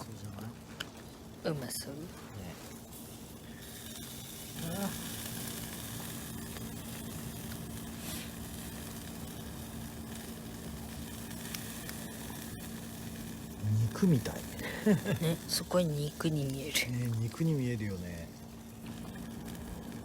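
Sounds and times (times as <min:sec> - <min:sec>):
food sizzling over a fire: 0:00.0 - 0:20.0.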